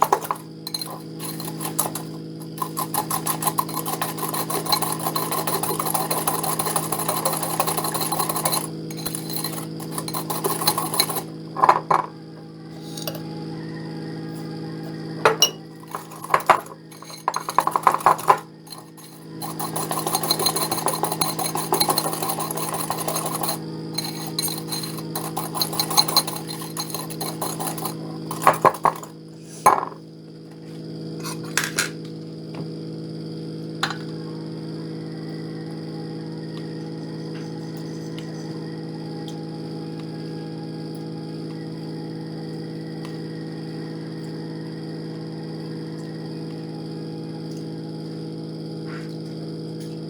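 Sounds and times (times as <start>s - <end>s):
metal utensils clinking on dishes: 0.0s - 12.1s, 15.3s - 29.1s
steady low hum: 0.0s - 50.0s.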